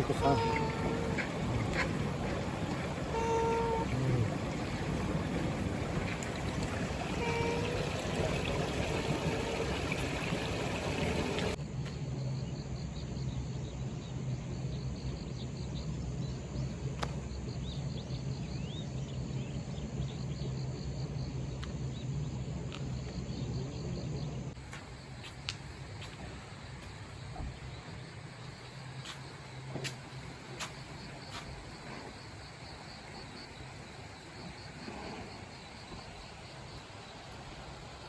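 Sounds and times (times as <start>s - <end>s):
running water rushing: 0.0s - 11.6s
low steady hum: 0.0s - 31.8s
insects chirping: 0.0s - 38.0s.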